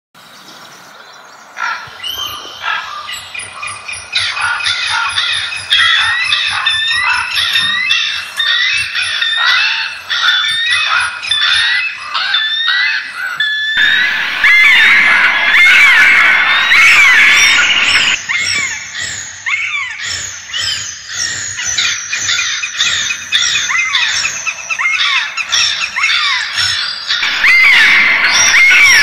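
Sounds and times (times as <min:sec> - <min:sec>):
many birds calling: 0:00.2 - 0:29.0.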